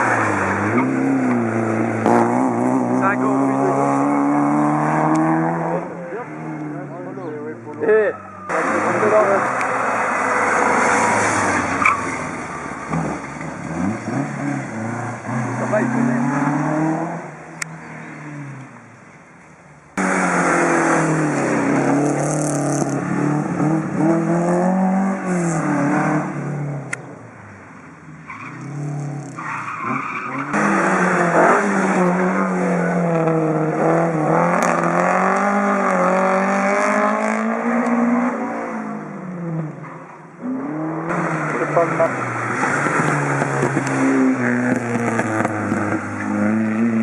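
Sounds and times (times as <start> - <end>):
rally car engines revving: 0.0 - 19.1, 19.9 - 47.0
tyres skidding and squealing: 0.0 - 47.0.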